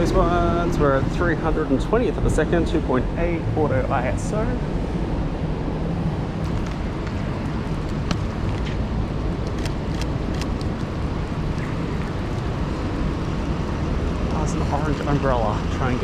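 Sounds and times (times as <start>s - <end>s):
traffic: 0.0s - 16.0s.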